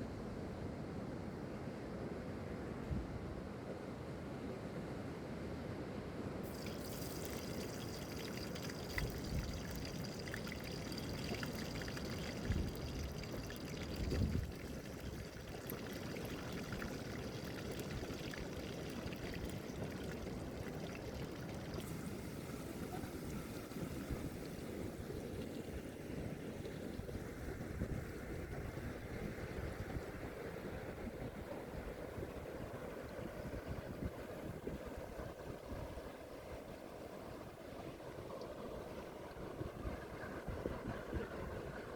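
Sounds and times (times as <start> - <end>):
wind and surf hiss: 0.0 - 41.9
fish sizzling in hot oil: 6.5 - 22.6.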